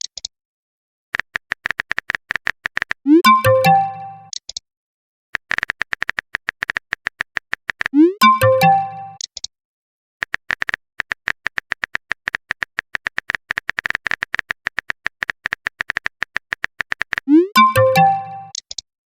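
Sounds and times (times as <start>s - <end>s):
rising swoop and chime alert: 3.1s - 4.3s, 8.0s - 9.2s, 17.3s - 18.5s
phone keyboard clicks: 10.2s - 17.2s.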